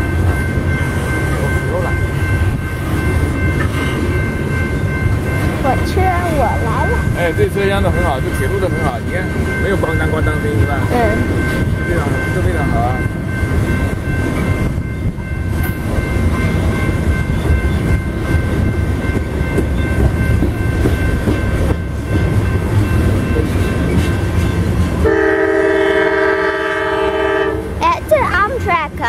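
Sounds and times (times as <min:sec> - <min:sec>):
train wheels rumbling on rail: 0:00.0 - 0:29.0
locomotive horn chord: 0:25.0 - 0:27.8.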